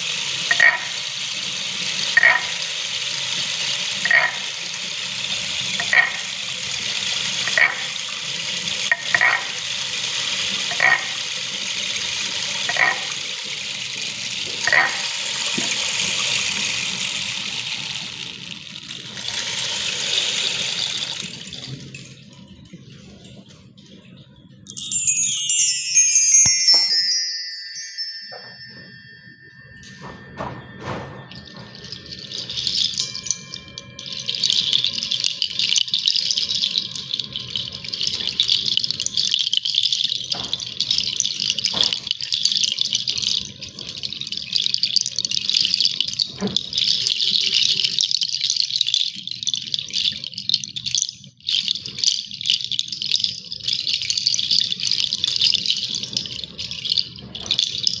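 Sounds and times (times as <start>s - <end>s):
bright chime with sliding tones: 24.7s - 34.7s.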